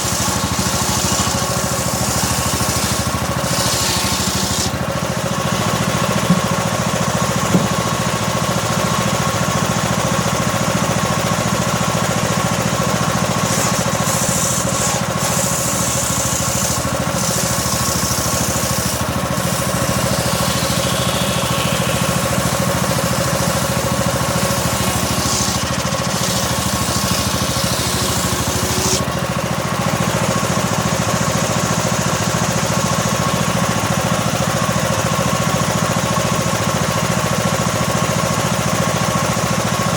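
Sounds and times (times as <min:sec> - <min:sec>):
saw blade cutting wood: 0:00.0 - 0:39.9
saw engine running: 0:00.0 - 0:39.9
sharp knocks: 0:06.2 - 0:06.5, 0:07.5 - 0:07.8.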